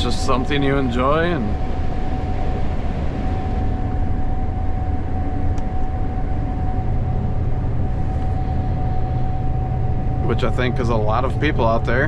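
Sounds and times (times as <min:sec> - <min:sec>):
combine engine drone: 0:00.0 - 0:12.0
steady whine: 0:00.0 - 0:12.0.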